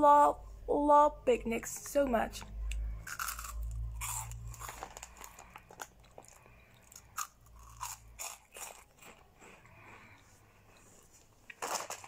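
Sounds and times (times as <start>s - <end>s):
corn snacks crunching: 3.0s - 12.0s.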